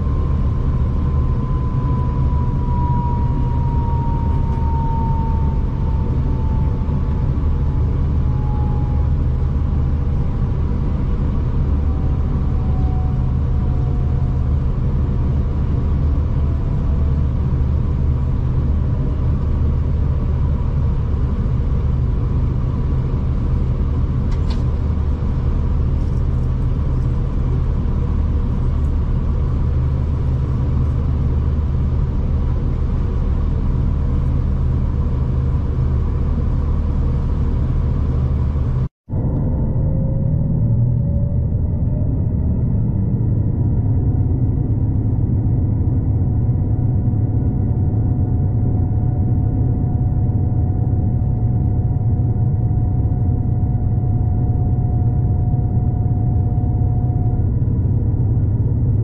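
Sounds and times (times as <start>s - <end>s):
thin falling whine: 0.0s - 10.3s
diesel train engine drone: 0.0s - 59.0s.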